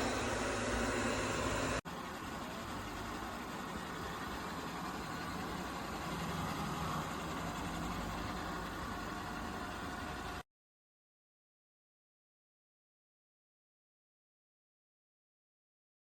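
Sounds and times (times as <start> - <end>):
robot vacuum whirring: 0.0 - 1.8.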